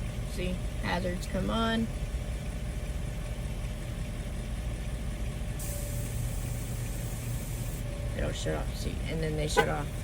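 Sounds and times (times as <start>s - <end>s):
air hissing into tire: 5.6s - 7.8s.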